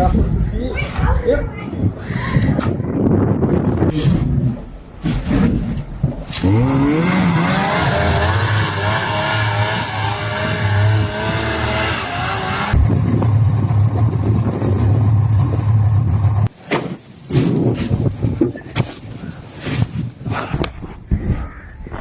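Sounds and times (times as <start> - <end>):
vehicle engine revving: 3.9 - 16.5.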